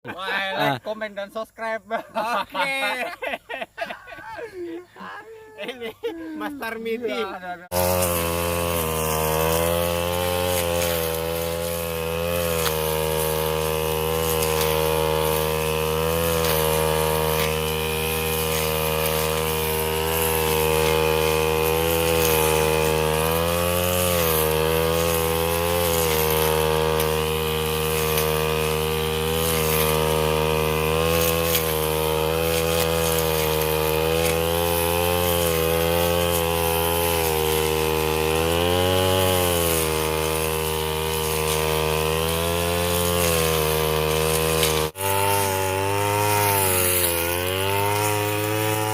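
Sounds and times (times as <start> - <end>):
brush cutter engine running: 5.8 - 48.9.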